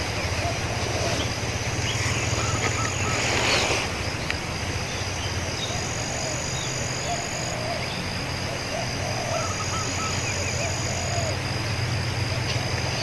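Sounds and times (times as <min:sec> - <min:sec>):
insect buzzing: 0:00.0 - 0:13.0
faint dove cooing: 0:08.5 - 0:11.5.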